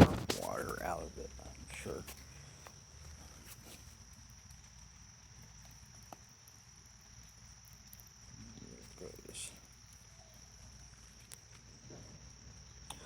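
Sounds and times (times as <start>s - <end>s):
raindrops dripping: 0.0s - 13.0s.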